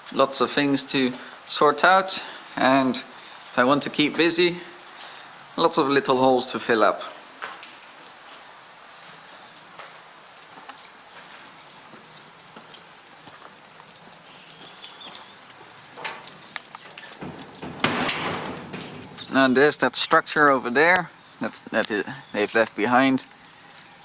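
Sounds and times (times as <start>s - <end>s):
rain falling: 0.0s - 24.0s
bird chirping: 14.3s - 15.4s, 16.0s - 22.6s.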